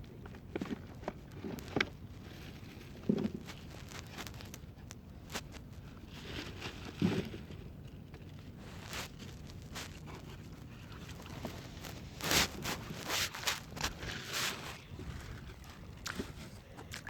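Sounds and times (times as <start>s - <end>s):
faint crackles: 0.0s - 17.0s
low steady rumble: 13.7s - 17.0s.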